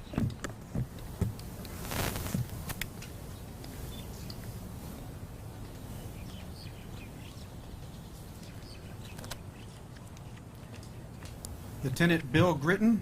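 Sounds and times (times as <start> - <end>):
small birds chirping: 0.0 - 12.6
low outdoor rumble: 0.0 - 13.0.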